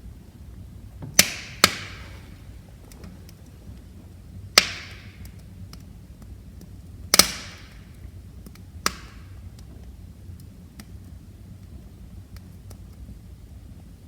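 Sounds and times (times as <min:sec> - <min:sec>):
low rumble of flames: 0:00.0 - 0:14.0
wood fire crackling: 0:00.0 - 0:14.0
sharp pops from fire: 0:01.0 - 0:11.7.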